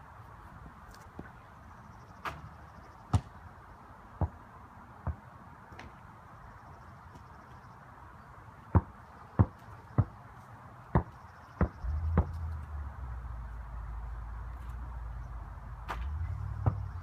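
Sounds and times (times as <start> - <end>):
basketball bouncing on hard ground: 2.3 - 3.4, 4.2 - 6.0, 8.7 - 12.6, 15.8 - 17.0
low rumble: 11.8 - 17.0.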